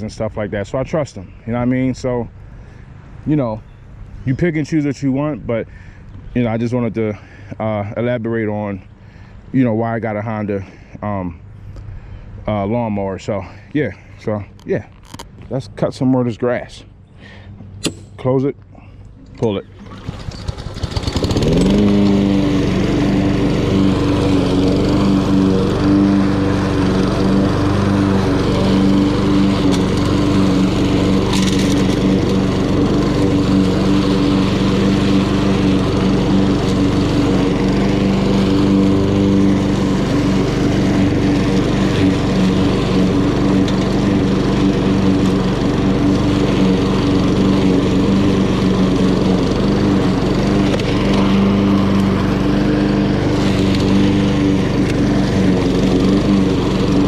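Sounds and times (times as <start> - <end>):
lawn mower engine running: 19.2 - 57.0.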